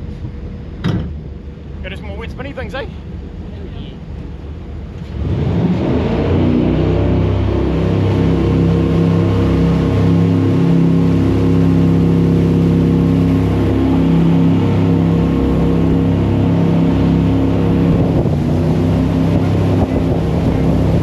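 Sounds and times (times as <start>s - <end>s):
jet boat engine running: 0.0s - 21.0s
rushing water: 5.2s - 21.0s.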